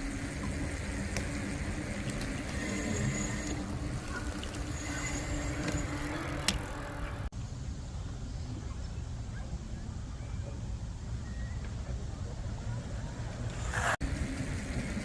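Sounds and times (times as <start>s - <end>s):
steady low hum: 0.0s - 11.2s
wind and road rumble: 0.0s - 15.0s.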